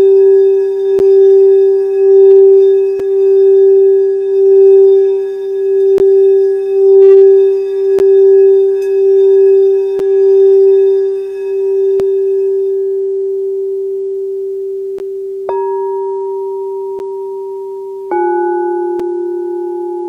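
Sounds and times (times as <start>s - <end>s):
singing bowl low tone: 0.0s - 20.0s.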